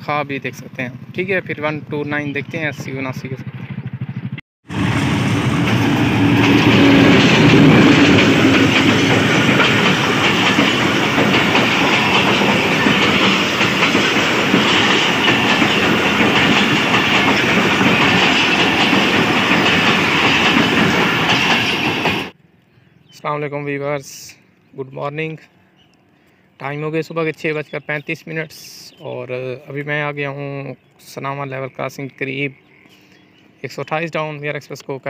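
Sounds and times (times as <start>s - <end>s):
diesel locomotive passing: 0.0s - 22.4s
train wheels clattering on rails: 4.7s - 22.4s.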